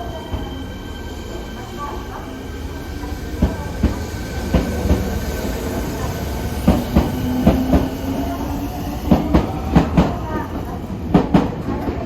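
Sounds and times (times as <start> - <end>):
train high whine: 0.0 - 12.0.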